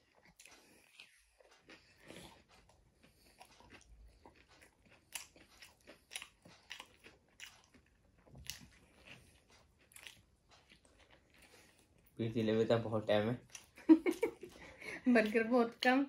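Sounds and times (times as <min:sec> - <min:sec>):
chewing crunchy burger: 0:00.0 - 0:15.9.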